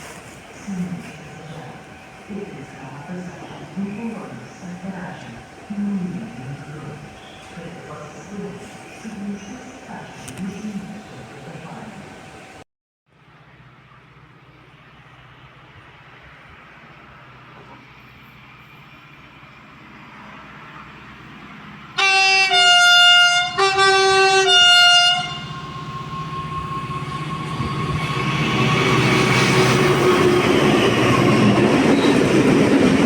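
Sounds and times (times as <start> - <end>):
train rumbling: 0.0 - 12.6, 13.2 - 33.0
two-tone train horn blasts: 22.0 - 28.0.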